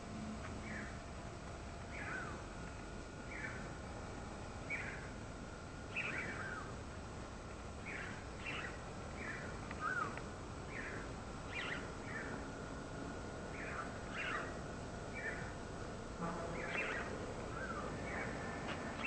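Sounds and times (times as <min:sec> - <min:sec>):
soft breeze: 0:00.0 - 0:19.0
birds chirping: 0:00.6 - 0:01.0, 0:01.9 - 0:02.4, 0:03.2 - 0:03.7, 0:04.6 - 0:05.2, 0:05.9 - 0:06.8, 0:07.8 - 0:12.5, 0:13.4 - 0:15.6, 0:16.5 - 0:19.0.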